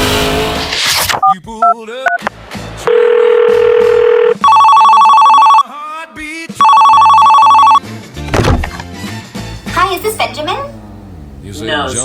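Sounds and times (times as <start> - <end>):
electronic telephone ringing: 2.9 - 5.6, 6.6 - 7.8
steady telephone tone: 2.9 - 5.6, 6.6 - 7.8.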